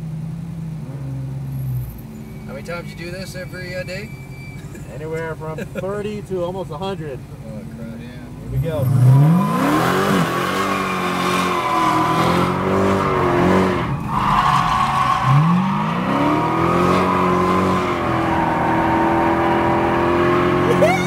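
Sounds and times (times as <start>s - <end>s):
tire squeal: 1.4s - 5.4s, 8.6s - 21.0s
car engine accelerating: 4.6s - 21.0s.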